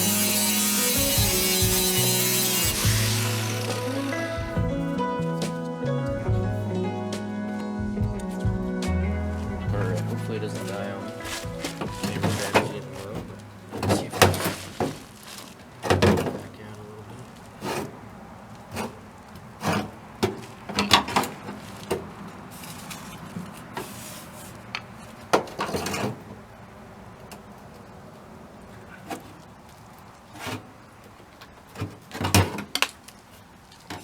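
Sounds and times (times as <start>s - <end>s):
metal knocks and clunks: 15.8s - 16.6s.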